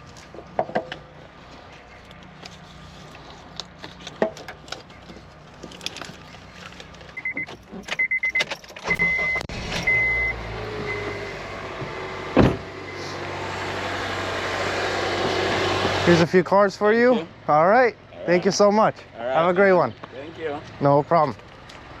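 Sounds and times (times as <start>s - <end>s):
car warning chime beeping: 7.2s - 11.4s
car door shutting: 7.4s - 12.7s.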